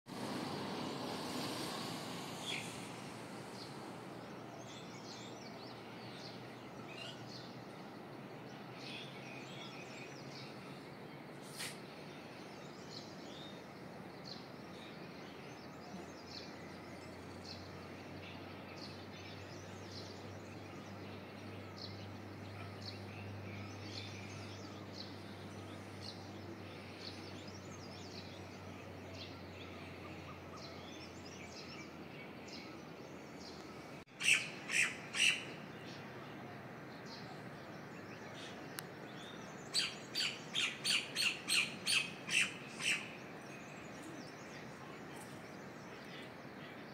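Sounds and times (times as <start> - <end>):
outdoor hiss: 0.1 - 6.4, 8.8 - 15.3
loud bird calls: 34.1 - 35.7.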